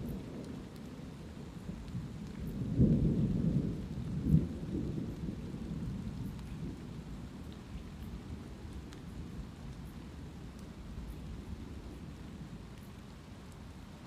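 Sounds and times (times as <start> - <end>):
thunder rumbling: 0.0 - 7.1
light rain falling: 0.0 - 14.0.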